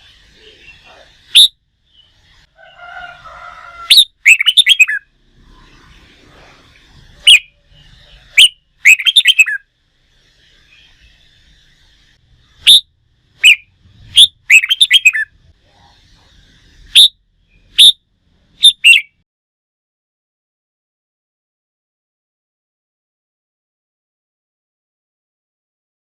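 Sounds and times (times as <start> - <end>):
bulbul singing: 0.0 - 2.5, 3.1 - 19.2.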